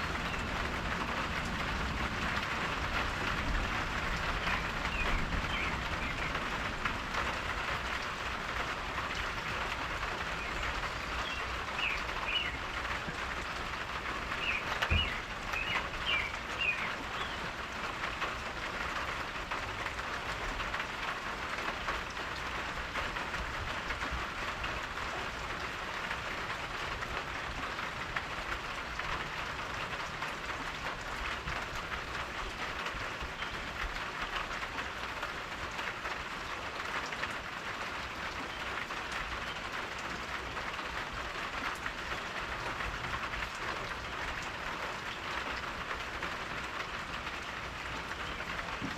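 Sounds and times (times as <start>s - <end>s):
rain falling: 0.0s - 48.9s
bird chirps: 14.4s - 17.4s.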